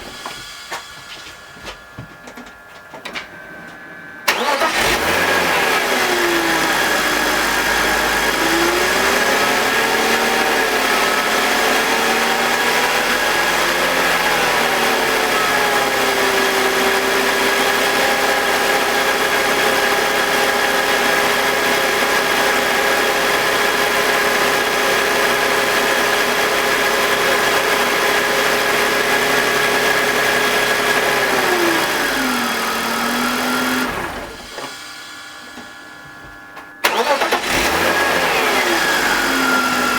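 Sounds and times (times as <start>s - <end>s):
car engine idling: 4.3s - 31.2s, 36.8s - 39.9s.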